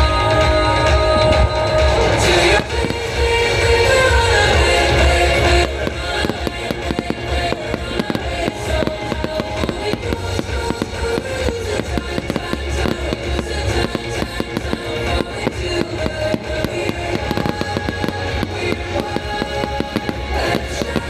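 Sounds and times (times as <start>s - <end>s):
music playing: 0.0s - 21.0s
fireworks crackling and popping: 1.1s - 21.0s.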